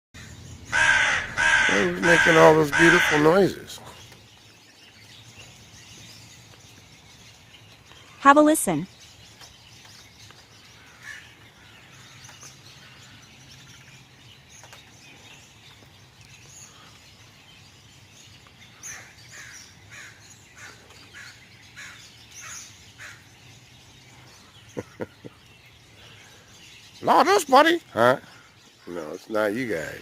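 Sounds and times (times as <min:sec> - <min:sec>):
crow cawing: 0:00.2 - 0:03.6, 0:10.8 - 0:12.2, 0:18.8 - 0:23.2
faint birdsong: 0:00.2 - 0:30.0.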